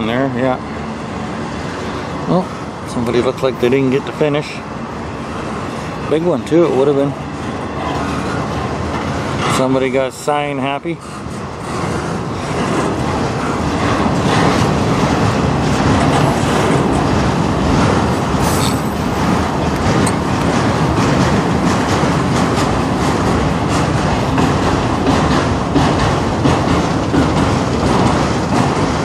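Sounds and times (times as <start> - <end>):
train wheels rumbling on rail: 0.0 - 29.0
wheels clicking over rail joints: 5.9 - 29.0.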